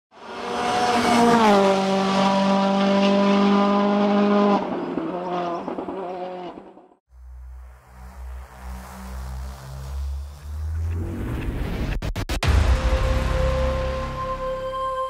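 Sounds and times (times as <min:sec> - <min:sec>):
race car engine at high revs: 0:00.1 - 0:06.7.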